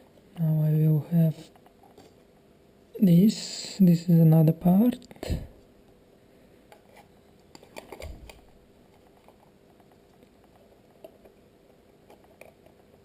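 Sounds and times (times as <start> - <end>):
small parts clicking and tapping: 12.0 - 13.0.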